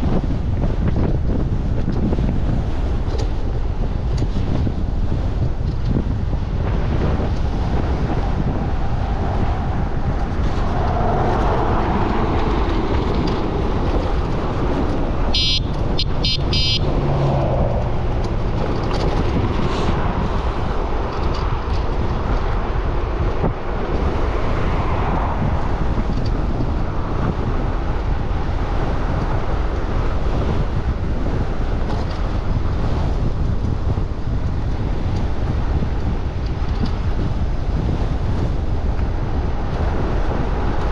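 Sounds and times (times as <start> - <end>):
road traffic: 0.0 - 40.9
wind buffeting microphone: 0.0 - 40.9
short high-pitched tones: 15.4 - 16.8.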